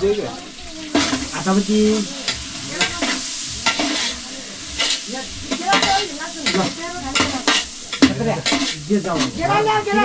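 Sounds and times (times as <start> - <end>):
food sizzling in hot oil: 0.0 - 10.0
spoon scraping a pot: 0.4 - 9.6.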